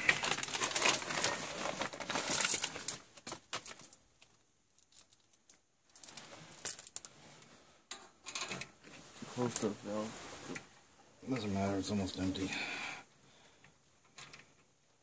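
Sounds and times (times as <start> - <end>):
parts and tools rustling: 0.0 - 11.5.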